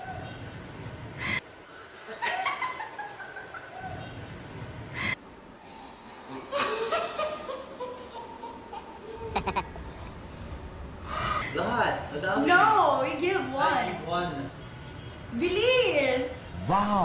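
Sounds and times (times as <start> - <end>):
people laughing: 6.5 - 9.8.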